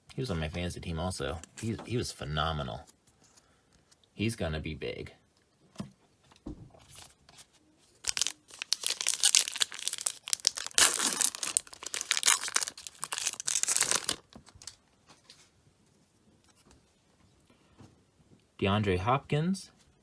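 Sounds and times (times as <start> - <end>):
wrapper tearing and crinkling: 8.0 - 14.8.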